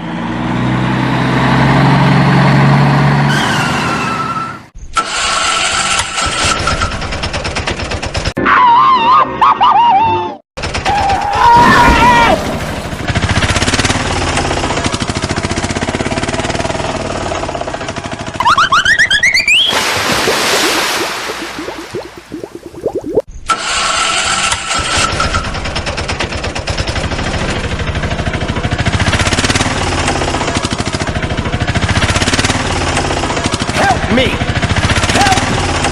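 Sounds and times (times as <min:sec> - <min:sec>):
fast rattling engine: 0:05.1 - 0:08.3, 0:10.6 - 0:11.1, 0:12.6 - 0:18.4, 0:23.6 - 0:35.9.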